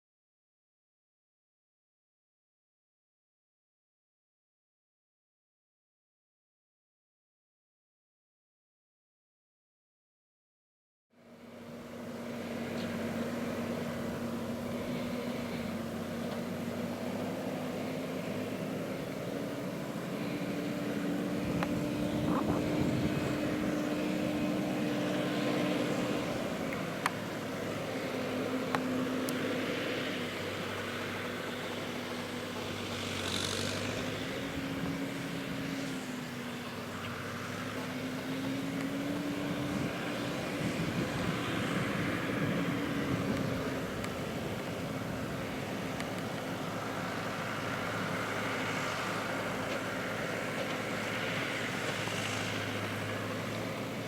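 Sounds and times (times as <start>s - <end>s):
tractor diesel engine running: 11.2s - 54.0s.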